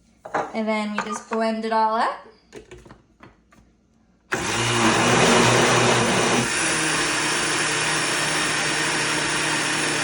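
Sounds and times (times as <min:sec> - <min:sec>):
blender running: 0:04.3 - 0:10.0.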